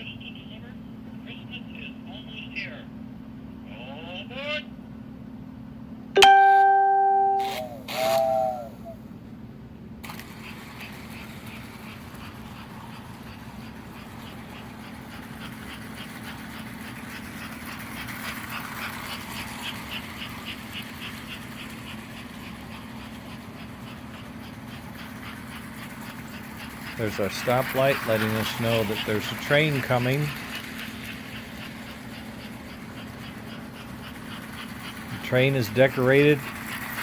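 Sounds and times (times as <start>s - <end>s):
short electronic chime: 6.2s - 7.8s
toy train motor hum: 7.4s - 9.0s, 10.0s - 37.0s
wheels clicking over rail joints: 10.0s - 37.0s.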